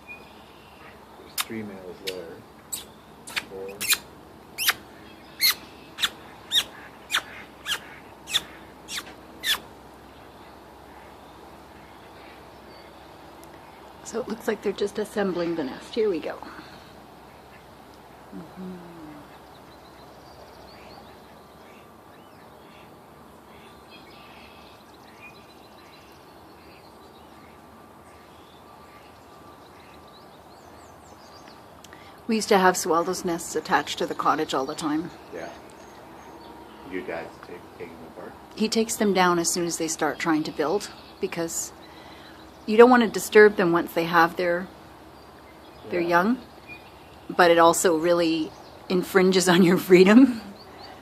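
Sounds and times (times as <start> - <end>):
small bird chirping: 0.0 - 14.4
outdoor background hiss: 0.0 - 51.0
small birds chirping and twittering: 0.0 - 51.0.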